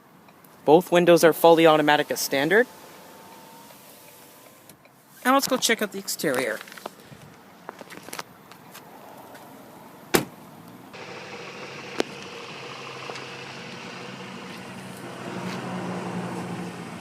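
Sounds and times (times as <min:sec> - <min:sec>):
car door clicks: 0:10.1 - 0:10.4
car engine idling: 0:10.9 - 0:17.0.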